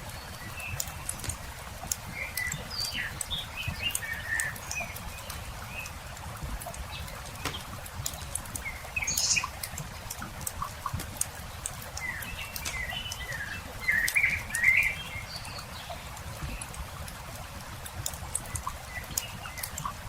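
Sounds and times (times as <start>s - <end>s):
campfire crackling and popping: 0.0s - 15.0s, 15.8s - 20.0s
small birds chirping: 0.0s - 17.2s, 18.0s - 20.0s.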